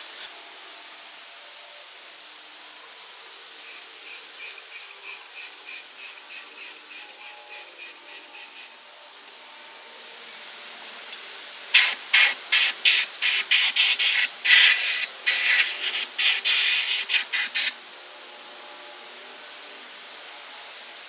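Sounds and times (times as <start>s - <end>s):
short spraying hiss bursts: 3.6s - 8.9s, 11.7s - 17.8s.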